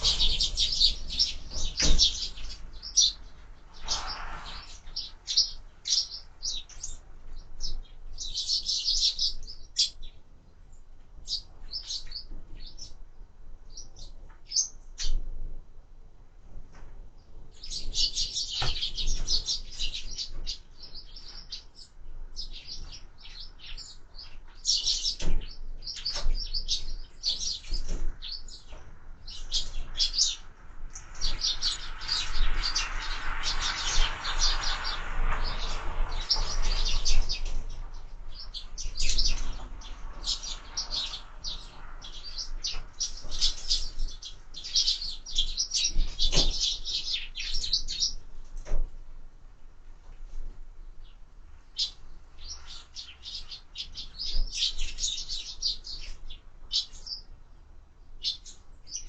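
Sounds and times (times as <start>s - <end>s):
broad rushing noise: 0.0s - 5.8s, 30.4s - 42.9s
sparrows chirping: 0.0s - 15.3s, 17.2s - 48.8s, 50.8s - 59.0s.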